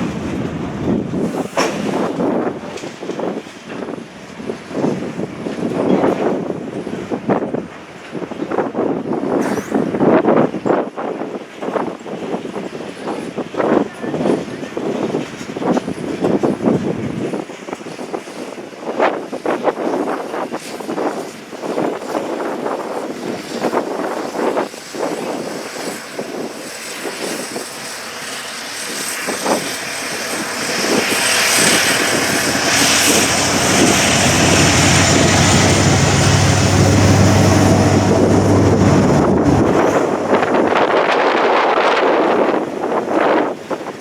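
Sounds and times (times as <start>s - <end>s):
engine drone with whine: 0.0s - 8.2s, 20.6s - 41.8s
wind buffeting microphone: 0.0s - 44.0s.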